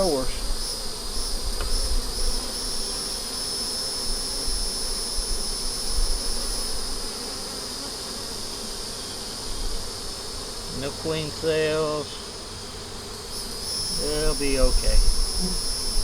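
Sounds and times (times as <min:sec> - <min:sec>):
high-pitched insect whine: 0:00.0 - 0:16.0
honey bees buzzing: 0:00.0 - 0:16.0.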